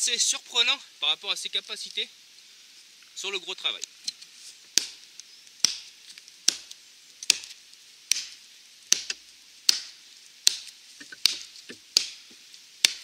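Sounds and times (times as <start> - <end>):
hatchet chopping log: 4.8 - 5.0, 5.6 - 5.9, 6.5 - 13.0.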